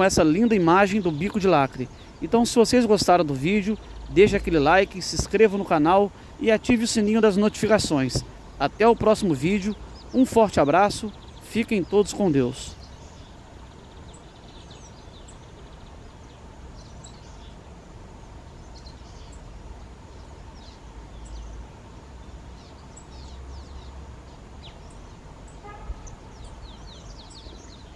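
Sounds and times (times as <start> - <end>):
high bird chirps: 24.6 - 27.9.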